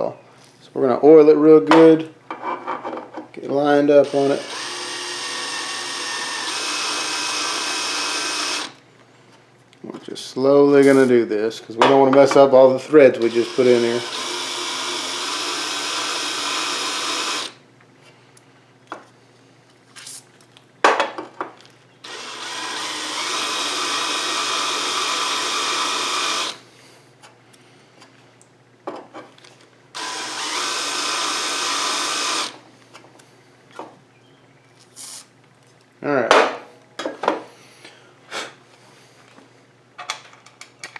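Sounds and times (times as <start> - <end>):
cordless drill running: 4.0 - 8.8, 13.2 - 17.6, 22.0 - 26.6, 30.0 - 32.6.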